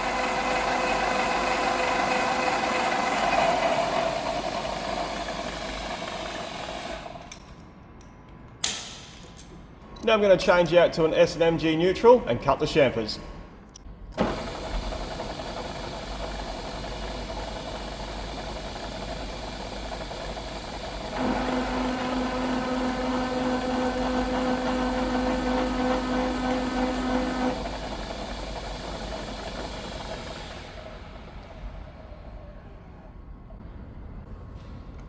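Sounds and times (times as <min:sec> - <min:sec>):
milling machine spindle running: 0:00.0 - 0:07.4, 0:14.2 - 0:32.8
tool cutting steel whine: 0:00.0 - 0:07.4, 0:14.2 - 0:30.8.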